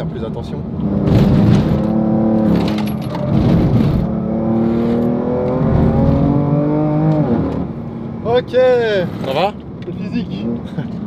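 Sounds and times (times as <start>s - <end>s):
car engine accelerating: 0.8s - 7.7s.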